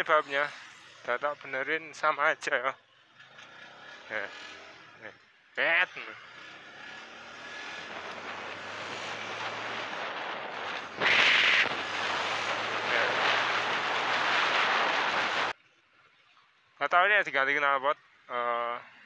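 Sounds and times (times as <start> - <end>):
motorcycle engine running: 2.8 - 15.5
wind and road noise: 3.0 - 5.0, 5.6 - 15.6.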